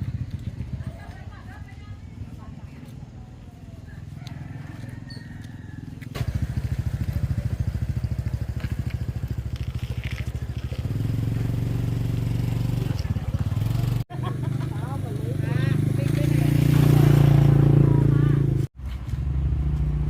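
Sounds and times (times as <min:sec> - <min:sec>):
small engine running: 0:06.1 - 0:17.2.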